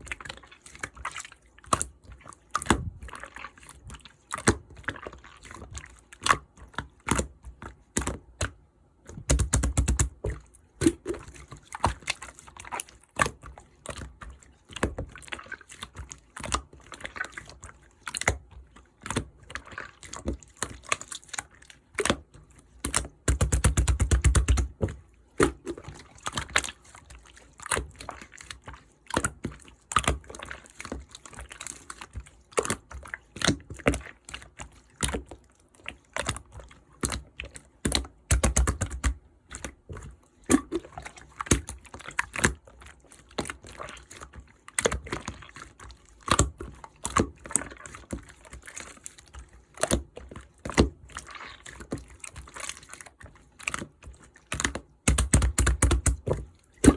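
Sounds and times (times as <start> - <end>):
slime squishing with sticky clicks: 0.0 - 56.9
wet squelches: 0.0 - 56.9.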